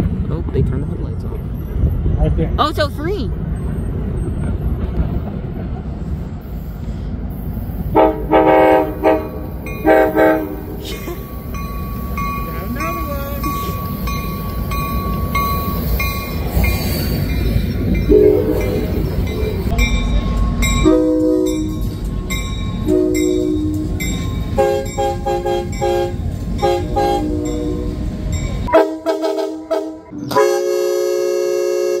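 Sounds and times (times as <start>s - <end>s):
train rumbling past: 0.0s - 32.0s
train horn blasts: 7.9s - 10.8s, 18.1s - 18.8s, 20.8s - 21.7s, 22.8s - 28.0s, 28.7s - 32.0s.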